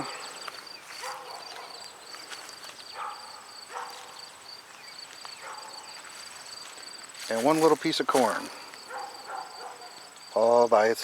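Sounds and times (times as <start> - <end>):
insects trilling: 0.0 - 11.0
distant dog barking: 1.0 - 2.0, 2.9 - 4.3, 5.4 - 6.0, 8.8 - 10.2.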